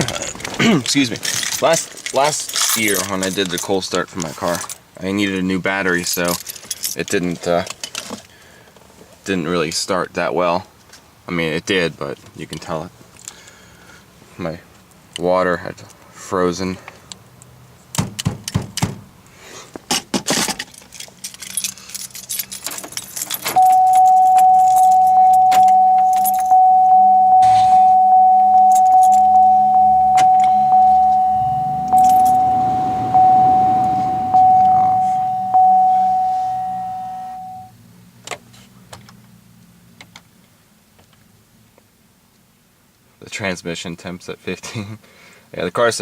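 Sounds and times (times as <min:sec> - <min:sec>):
keys jangling: 0:01.1 - 0:03.7, 0:20.5 - 0:33.1
car warning chime dinging: 0:23.5 - 0:37.7.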